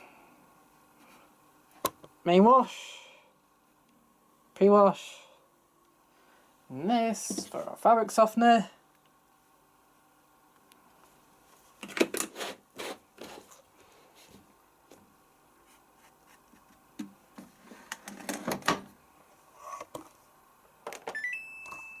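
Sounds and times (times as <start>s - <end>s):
washing machine beep: 21.1s - 22.0s.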